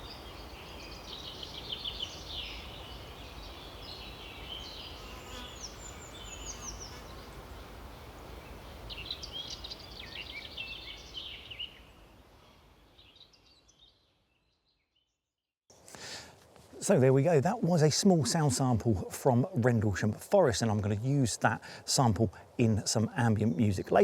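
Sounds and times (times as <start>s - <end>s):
small birds chirping: 0.0s - 15.1s
wind through treetops: 0.0s - 24.0s.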